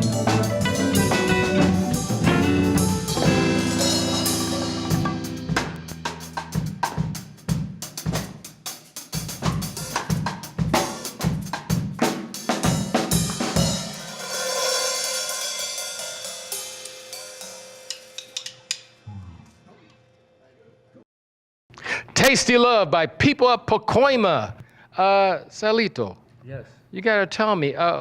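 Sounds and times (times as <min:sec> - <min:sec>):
drum kit played: 0:00.0 - 0:18.8
cymbal ringing out: 0:03.4 - 0:05.6, 0:13.3 - 0:19.0.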